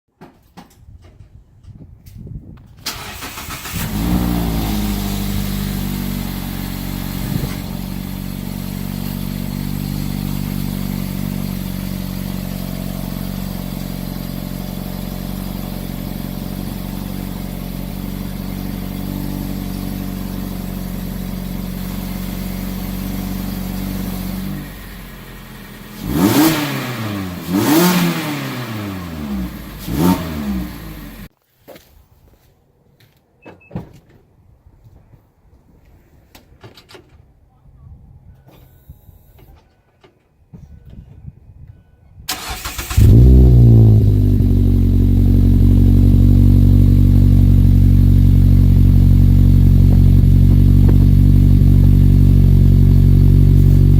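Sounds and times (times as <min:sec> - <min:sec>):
car engine throttle blips: 0:02.9 - 0:31.3, 0:42.3 - 0:53.9
car engine idling: 0:03.0 - 0:31.3, 0:42.3 - 0:53.9.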